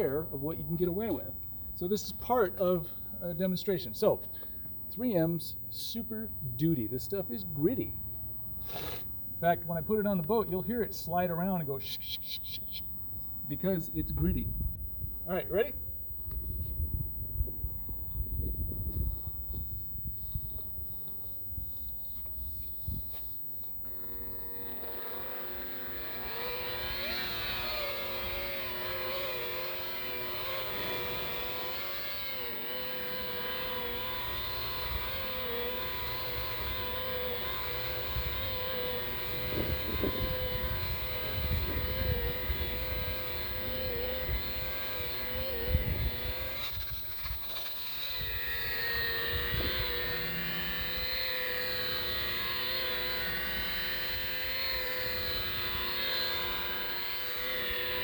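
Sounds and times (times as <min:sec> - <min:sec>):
rotary buffer motor whine: 0:00.0 - 0:58.0
wind rumble on microphone: 0:14.0 - 0:15.3, 0:16.2 - 0:23.2, 0:38.0 - 0:51.4.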